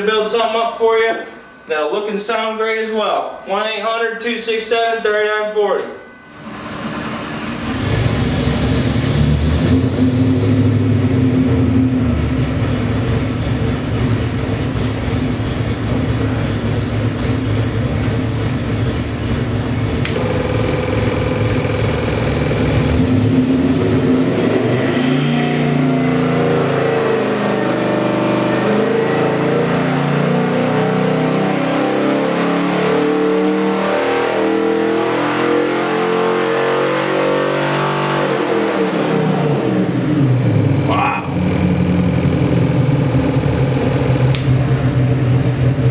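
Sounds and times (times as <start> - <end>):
engine revving on dyno: 6.7 - 45.9.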